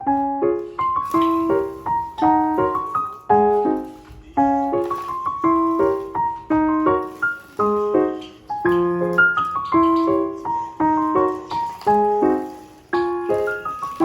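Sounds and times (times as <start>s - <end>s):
light piano music: 0.0s - 14.0s.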